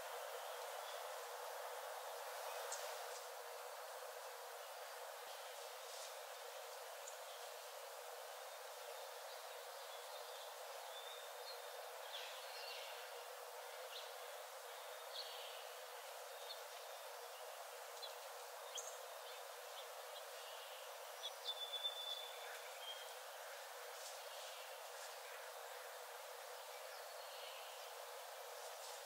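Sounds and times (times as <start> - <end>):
steady background hiss: 0.0 - 29.0.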